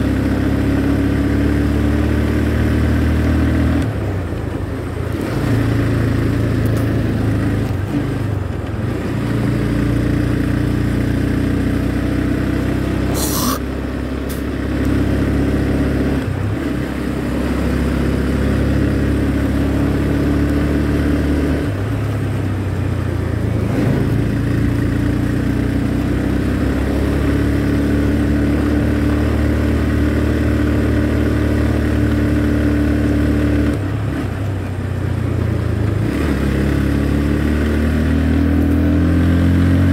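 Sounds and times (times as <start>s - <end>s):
motorcycle engine running: 0.0s - 39.9s
short sharp sound: 13.1s - 13.6s.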